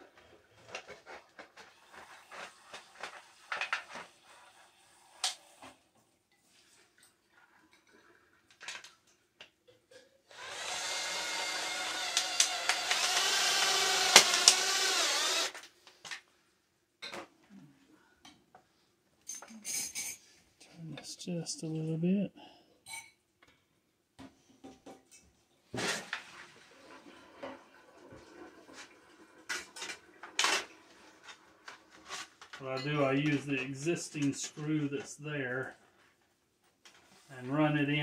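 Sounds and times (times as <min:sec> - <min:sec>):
power tool motor running: 0:10.3 - 0:15.6.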